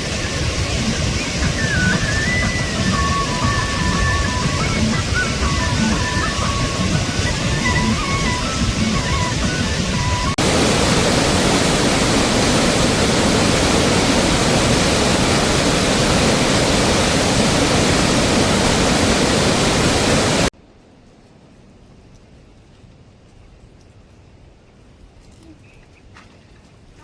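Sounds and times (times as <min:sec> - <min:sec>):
heavy rain hissing: 0:00.0 - 0:20.5
music: 0:00.4 - 0:10.4.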